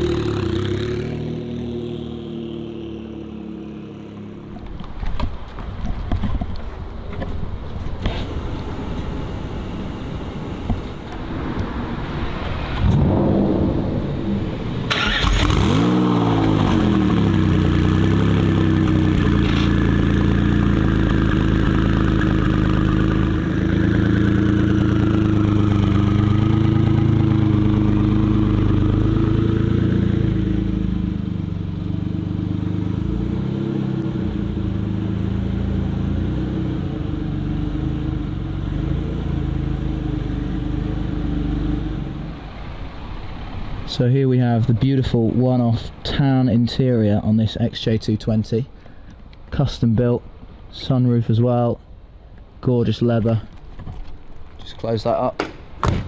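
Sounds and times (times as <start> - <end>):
car engine starting and revving: 0.0 - 4.4, 8.0 - 43.7.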